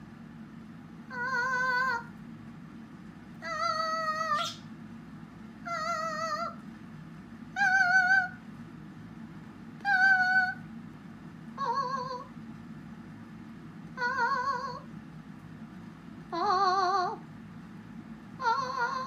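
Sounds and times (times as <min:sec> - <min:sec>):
cockatiel singing long notes: 0:03.5 - 0:04.6.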